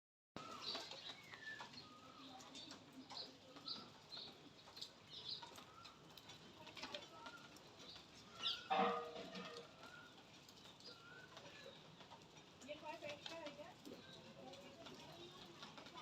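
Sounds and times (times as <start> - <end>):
birds chirping: 0.4 - 16.0.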